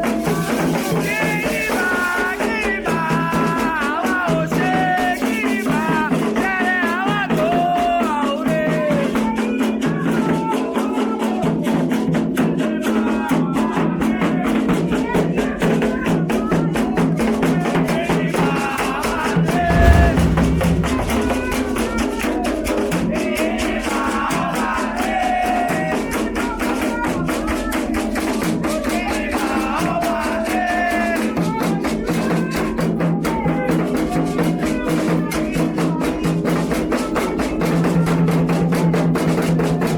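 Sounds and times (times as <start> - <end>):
drumming: 19.5 - 23.2
low thump: 19.6 - 22.8.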